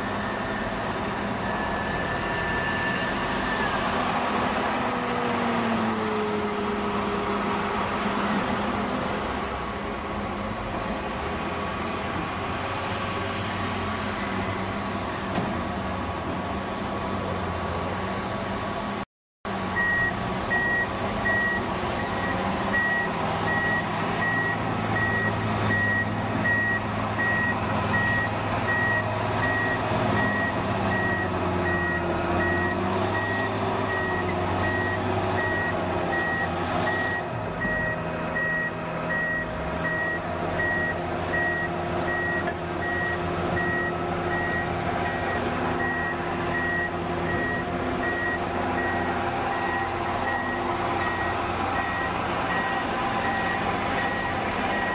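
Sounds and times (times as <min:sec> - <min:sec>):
bulldozer diesel engine running: 0:00.0 - 0:18.1, 0:18.8 - 0:54.9
reversing alarm beeping: 0:19.8 - 0:54.9.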